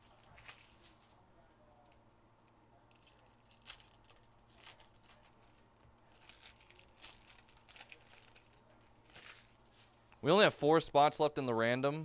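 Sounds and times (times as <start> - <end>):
wrappers crinkling and tearing: 0.0 - 1.2, 2.9 - 10.0.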